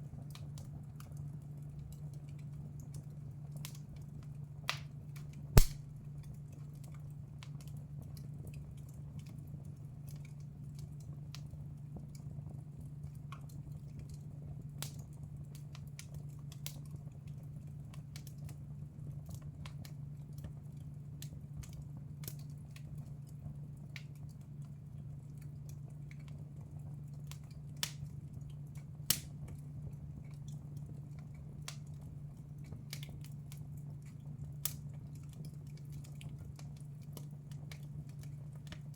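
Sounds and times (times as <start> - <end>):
wood fire crackling: 0.2 - 38.9
low steady hum: 5.6 - 6.0.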